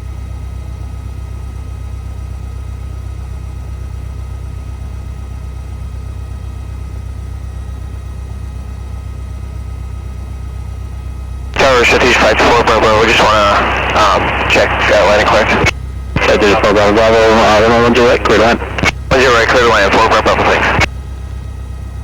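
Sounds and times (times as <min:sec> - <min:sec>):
faint high whine: 0:11.6 - 0:20.9
aircraft engine droning: 0:11.6 - 0:22.0.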